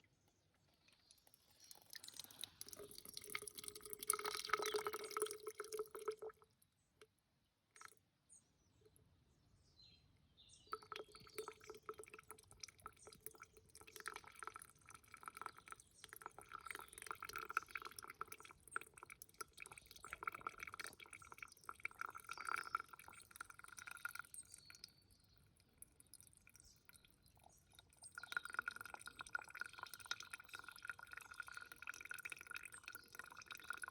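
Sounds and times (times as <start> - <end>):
water dripping and splashing: 0.8 - 6.4, 10.7 - 33.9.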